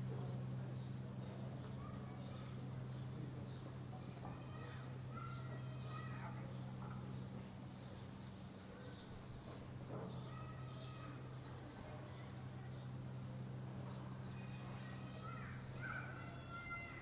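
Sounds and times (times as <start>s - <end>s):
birds chirping: 0.0s - 17.0s
longer lower bird call: 13.8s - 17.0s.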